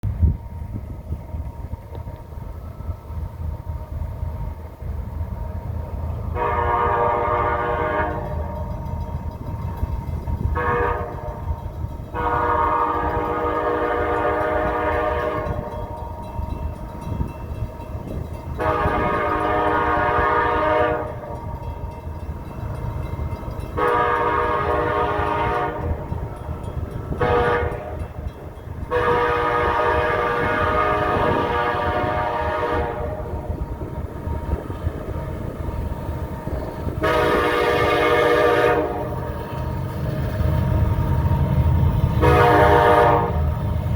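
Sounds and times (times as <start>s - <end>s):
locomotive engine rumble: 0.0s - 43.9s
locomotive horn blasts: 6.3s - 8.8s, 10.4s - 16.2s, 18.5s - 21.9s, 23.7s - 26.3s, 27.1s - 33.6s, 34.2s - 39.4s, 42.2s - 43.6s.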